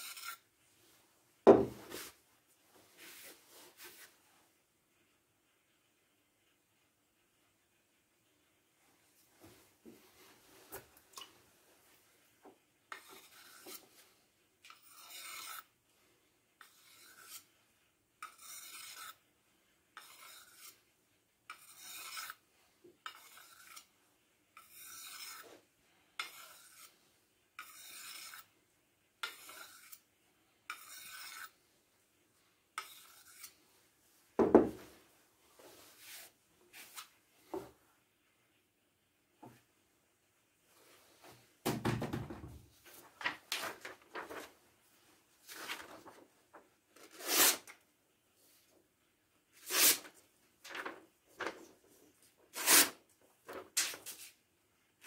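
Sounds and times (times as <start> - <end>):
rasp scraping strokes: 14.7 - 15.7, 16.6 - 17.5, 18.2 - 19.2, 20.0 - 20.8, 21.5 - 22.4, 23.0 - 23.9, 24.6 - 25.6, 26.2 - 27.0, 27.6 - 28.5, 30.7 - 31.6, 32.8 - 33.6, 49.6 - 50.1, 52.6 - 53.0.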